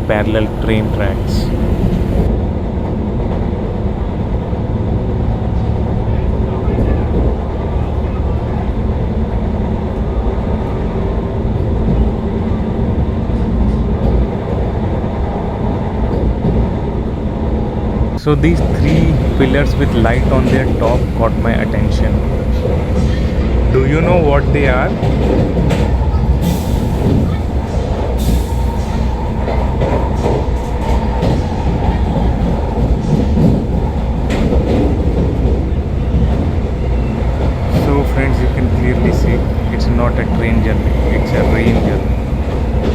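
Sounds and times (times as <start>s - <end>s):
train wheels rumbling on track: 0.0s - 42.9s.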